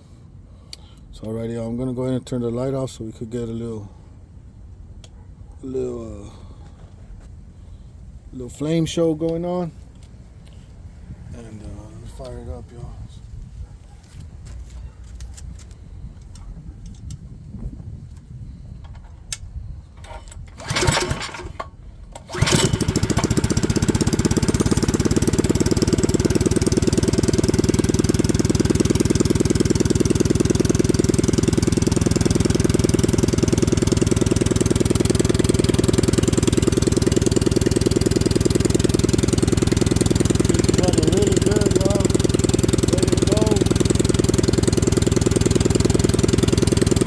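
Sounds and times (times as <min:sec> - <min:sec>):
small engine pull-started and running: 0:19.9 - 0:47.0.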